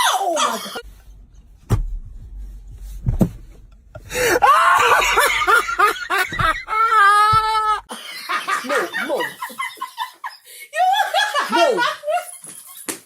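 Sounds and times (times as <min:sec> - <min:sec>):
thump: 0:01.6 - 0:02.3, 0:02.9 - 0:03.6, 0:06.2 - 0:06.7, 0:07.3 - 0:07.7
loud human laughter: 0:04.3 - 0:12.9.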